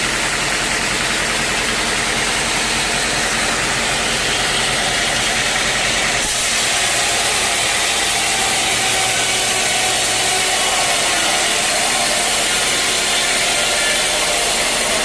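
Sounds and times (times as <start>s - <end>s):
sawmill machinery engine hum: 0.0s - 15.0s
loud high hiss: 2.2s - 15.0s.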